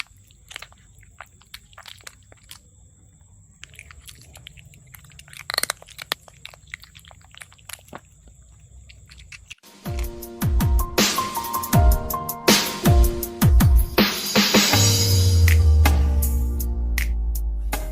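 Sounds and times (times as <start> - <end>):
cat crunching food: 0.0 - 10.3.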